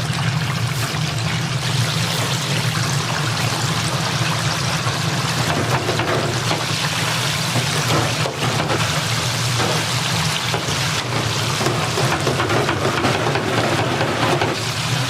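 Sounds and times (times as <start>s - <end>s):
oil sizzling in a deep fryer: 0.0s - 15.0s.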